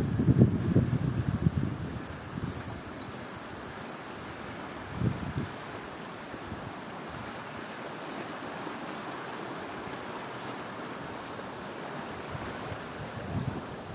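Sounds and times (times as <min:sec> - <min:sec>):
stream flowing: 0:00.0 - 0:13.9
faint high bird chirps: 0:02.5 - 0:04.0.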